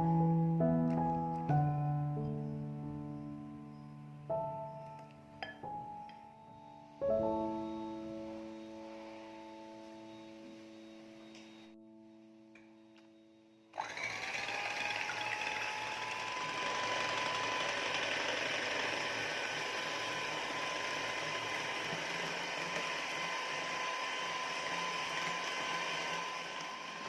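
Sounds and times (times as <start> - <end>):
electric mixer motor whine: 6.5 - 11.8, 13.7 - 27.0.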